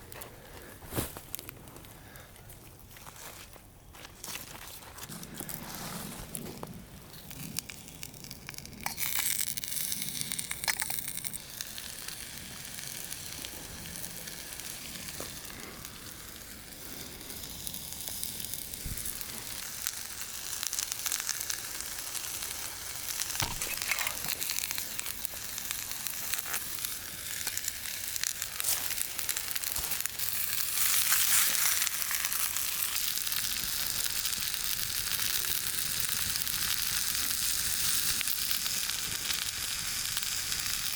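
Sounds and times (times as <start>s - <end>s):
food sizzling in a pan: 7.4s - 15.2s, 17.2s - 40.9s.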